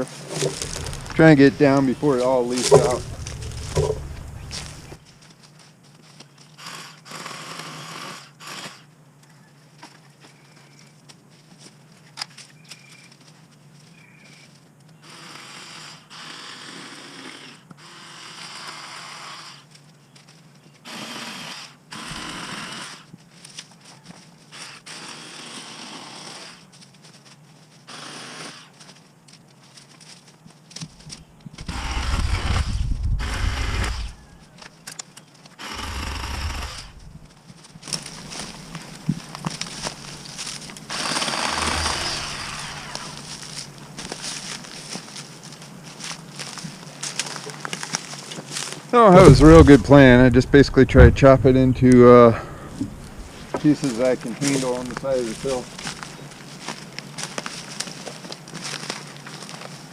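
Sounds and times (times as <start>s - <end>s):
battery chainsaw cutting: 0.0s - 5.0s, 31.6s - 34.2s, 35.6s - 37.1s, 39.8s - 43.4s.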